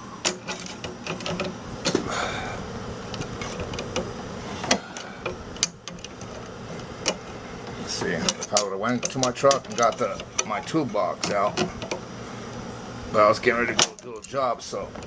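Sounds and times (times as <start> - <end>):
metal tools clicking and clinking: 8.0 - 12.0.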